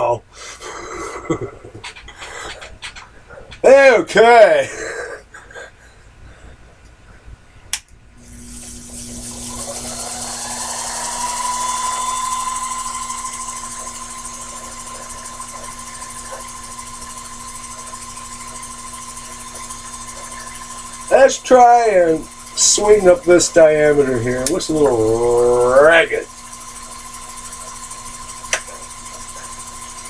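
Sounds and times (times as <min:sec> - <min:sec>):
lathe motor whine: 0:08.2 - 0:30.0.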